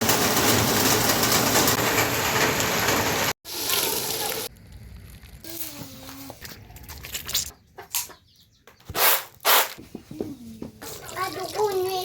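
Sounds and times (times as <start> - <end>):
heavy rain pouring: 0.0 - 4.5.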